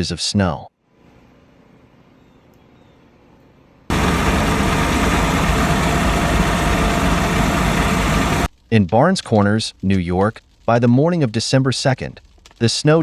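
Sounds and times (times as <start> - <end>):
loud steady rushing noise: 3.9 - 8.5
low engine hum: 3.9 - 8.5.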